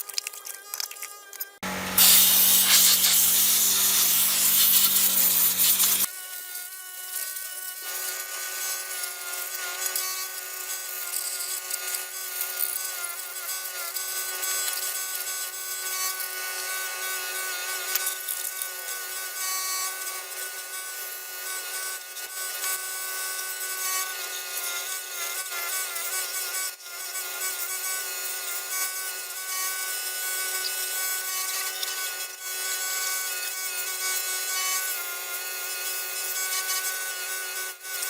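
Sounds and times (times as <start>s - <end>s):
abrasive tool scraping metal part: 1.6s - 6.1s.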